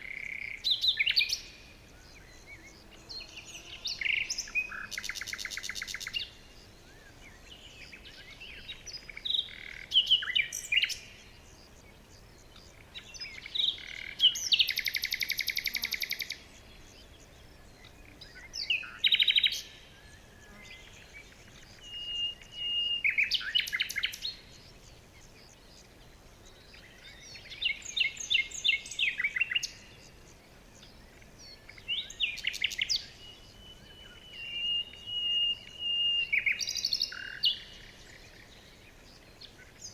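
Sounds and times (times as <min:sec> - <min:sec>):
faint outdoor hiss: 0:00.0 - 0:39.9
songbirds singing: 0:00.0 - 0:39.9.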